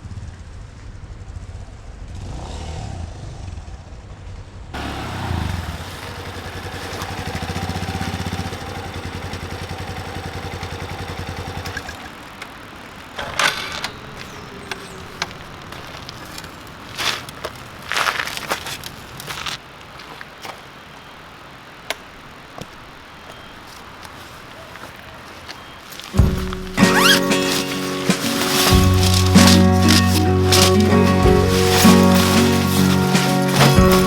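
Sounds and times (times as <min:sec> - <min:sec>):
motorcycle engine running: 0:04.8 - 0:16.6, 0:25.9 - 0:34.0
sharp knocks and clatters: 0:13.2 - 0:15.4, 0:26.1 - 0:34.0.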